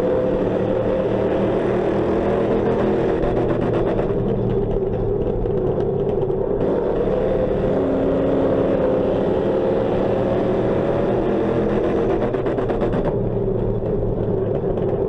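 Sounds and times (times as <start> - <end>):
race car engine running: 0.0 - 15.0
fast rattle: 3.3 - 6.7.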